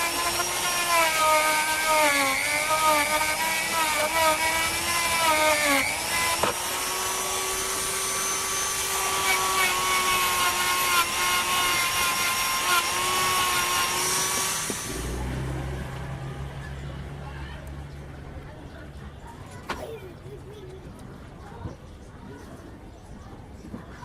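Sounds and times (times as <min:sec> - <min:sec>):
power tool whining and grinding: 0:00.0 - 0:16.2.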